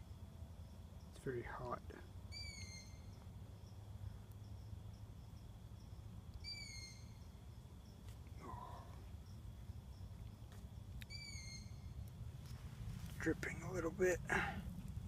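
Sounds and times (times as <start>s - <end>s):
insects ticking: 0.0s - 15.0s
low steady background: 0.0s - 15.0s
night bird call: 1.0s - 12.7s.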